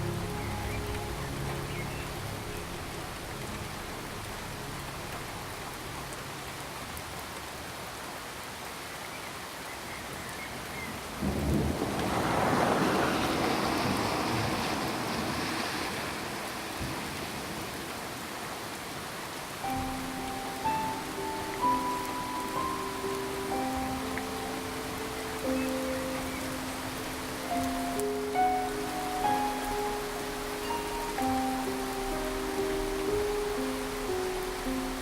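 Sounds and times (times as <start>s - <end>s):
steady rain falling: 0.0s - 35.0s
thunder clap and rumble: 11.2s - 15.4s.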